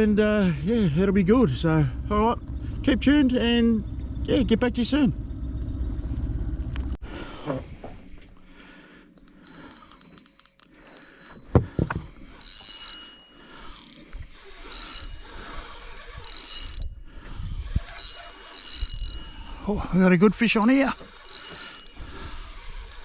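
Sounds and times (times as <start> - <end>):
fishing reel drag ratcheting: 9.1 - 11.4, 12.1 - 23.0.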